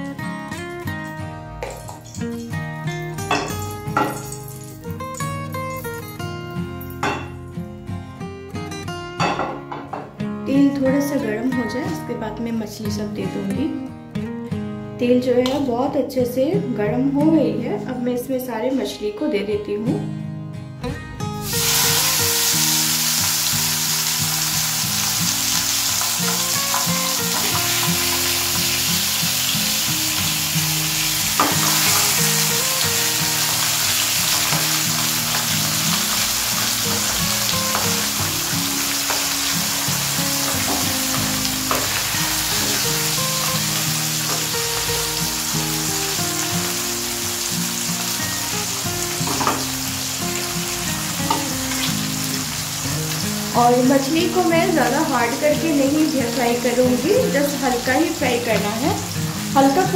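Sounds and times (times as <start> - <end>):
fish sizzling in hot oil: 3.5 - 5.4, 21.4 - 59.9.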